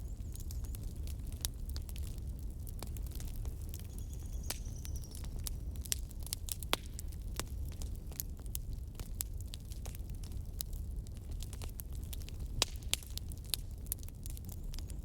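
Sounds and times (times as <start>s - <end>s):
low rumble of flames: 0.0s - 15.0s
fireplace logs crackling: 4.5s - 14.8s.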